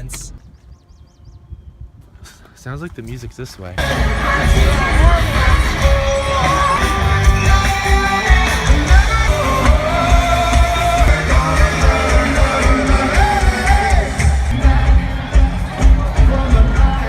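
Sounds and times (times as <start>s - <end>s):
live rock band playing: 3.8s - 17.0s
person singing: 3.8s - 17.0s.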